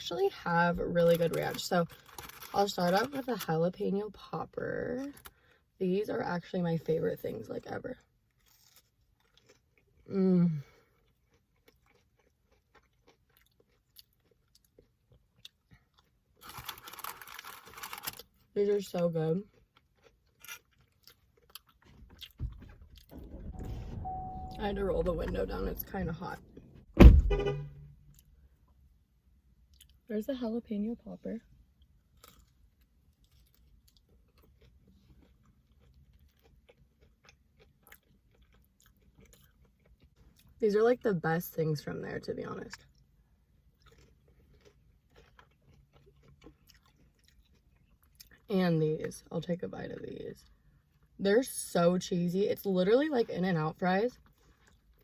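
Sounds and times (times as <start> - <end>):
crunchy chewing: 1.0 - 2.8, 8.3 - 18.4, 19.4 - 23.1, 32.1 - 40.6, 43.7 - 48.5.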